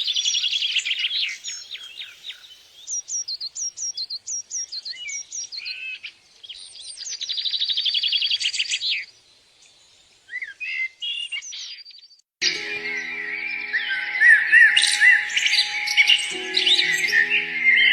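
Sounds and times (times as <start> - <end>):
birds chirping: 12.4 - 17.9
fast high bird trill: 12.4 - 17.9.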